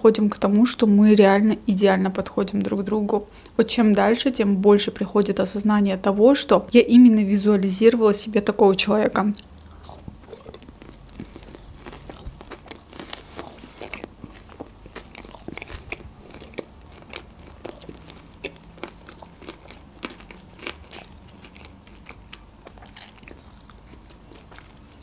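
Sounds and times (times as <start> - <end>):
person chewing food: 9.4 - 25.0.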